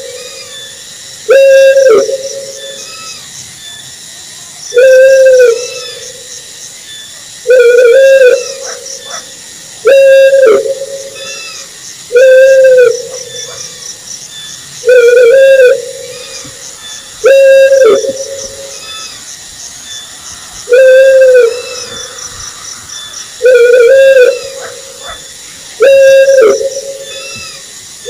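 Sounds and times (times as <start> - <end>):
owl hooting: 0.0 - 3.2, 4.7 - 6.3, 7.5 - 13.8, 14.8 - 20.0, 20.6 - 27.6
faint high chirping: 10.1 - 27.7.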